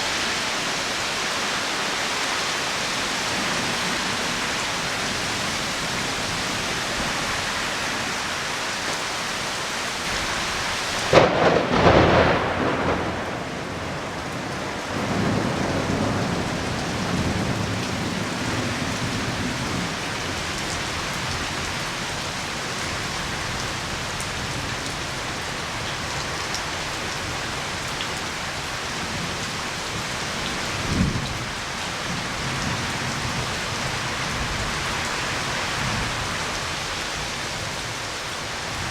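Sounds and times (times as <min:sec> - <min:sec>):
heavy rain: 0:00.0 - 0:38.9
thunderclap and rumbling: 0:11.0 - 0:19.9.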